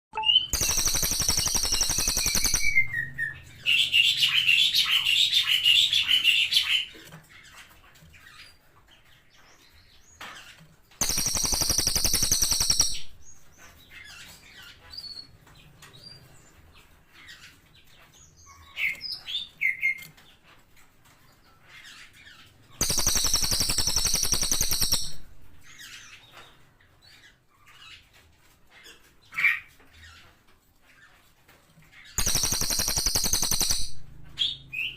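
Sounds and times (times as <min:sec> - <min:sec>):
fast warbling trill: 0:00.2 - 0:03.2, 0:11.0 - 0:13.0, 0:22.8 - 0:25.2, 0:32.2 - 0:34.0
soft scattered chirps: 0:00.2 - 0:03.5, 0:09.6 - 0:16.3, 0:21.2 - 0:34.7
songbird buzzing trills: 0:11.0 - 0:12.9, 0:32.2 - 0:33.8.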